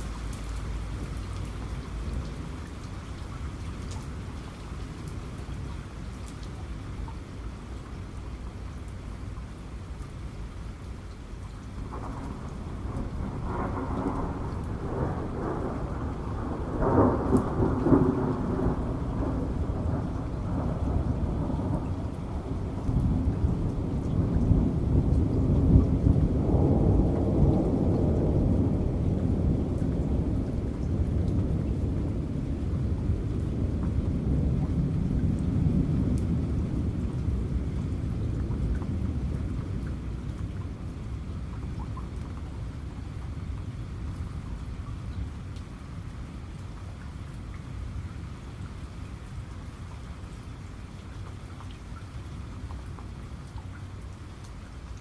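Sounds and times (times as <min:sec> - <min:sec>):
steady rain: 0:00.0 - 0:55.0
rolling thunder: 0:11.8 - 0:43.5.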